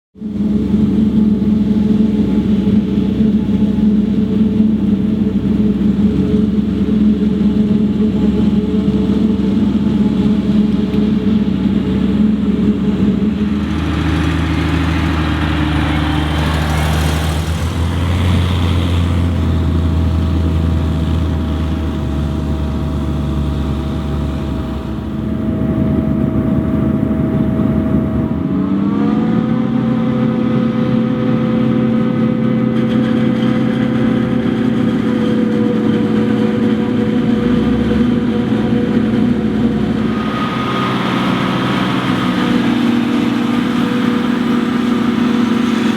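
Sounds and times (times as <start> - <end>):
diesel engines running under load: 0.3 - 45.9
engine revving up: 13.2 - 21.3, 33.4 - 45.9.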